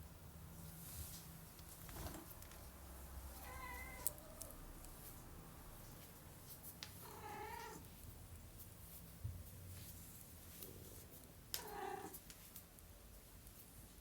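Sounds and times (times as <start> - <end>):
cat meowing: 3.4 - 4.2.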